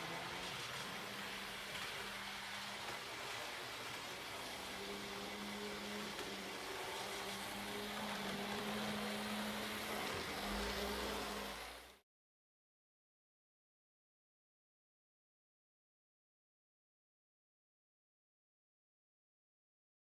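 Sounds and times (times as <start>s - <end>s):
electric motor hum: 4.3s - 11.8s.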